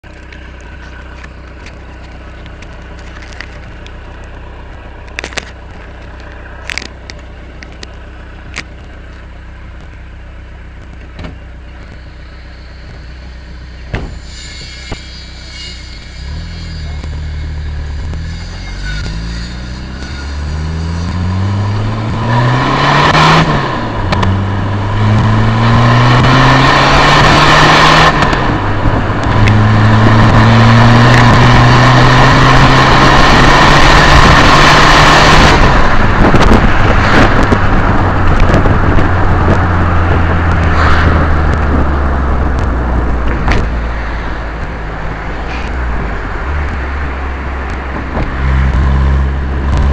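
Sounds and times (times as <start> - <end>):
diesel engine accelerating: 0.0 - 49.9
turbo whistle and hiss: 14.1 - 17.6.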